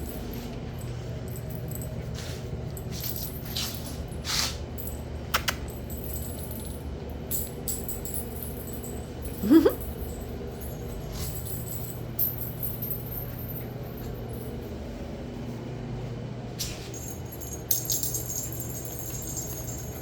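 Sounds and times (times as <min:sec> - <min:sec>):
metallic jingles: 0:17.0 - 0:20.0.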